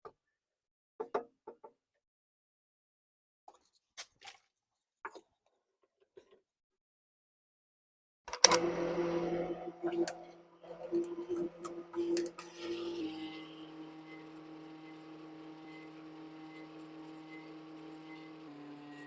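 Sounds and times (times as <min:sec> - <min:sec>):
wood lathe motor humming: 0:08.4 - 0:19.0.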